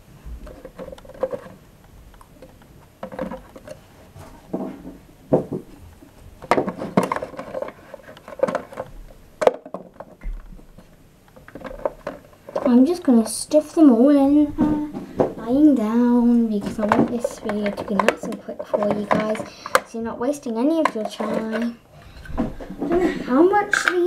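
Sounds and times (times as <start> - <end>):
plastic toy figures clattering: 0.4 - 1.6, 2.4 - 3.8, 6.4 - 10.2, 11.4 - 13.1, 16.5 - 24.0.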